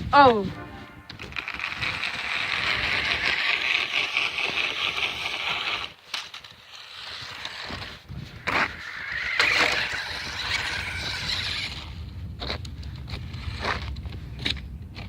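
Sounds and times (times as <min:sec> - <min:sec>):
remote-control car motor whirring: 0:01.4 - 0:06.0, 0:06.7 - 0:12.0.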